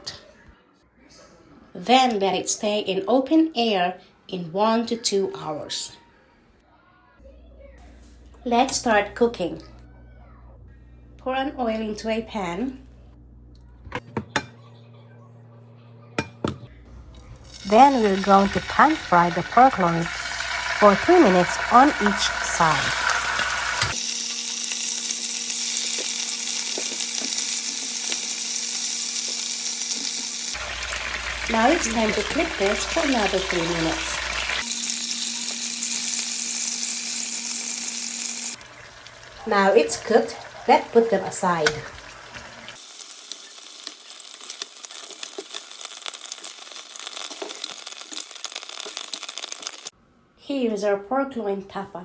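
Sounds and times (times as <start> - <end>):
meat sizzling in hot oil: 17.4 - 49.9.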